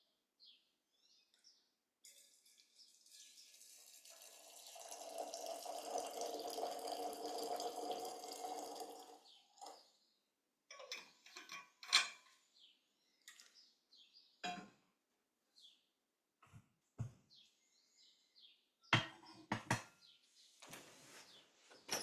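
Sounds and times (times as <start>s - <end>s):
tea pouring into cup: 2.1s - 9.8s.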